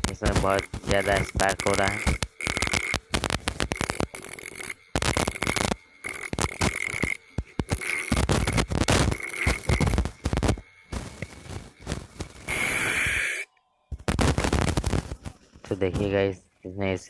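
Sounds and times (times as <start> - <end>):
thin high motor whine: 0.0 - 17.0
grinder disc rasping against steel: 0.2 - 13.4.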